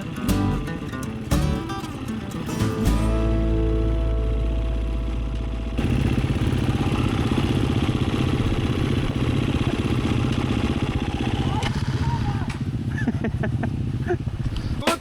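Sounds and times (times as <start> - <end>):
guitar music: 0.0 - 7.4
motorcycle engine running: 0.0 - 14.6.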